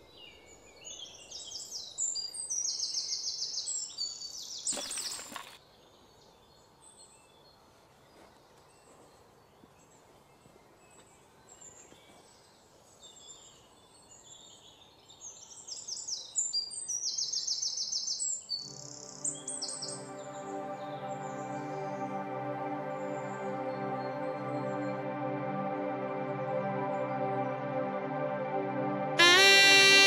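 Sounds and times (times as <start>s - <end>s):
soft music with held notes: 18.6s - 30.0s.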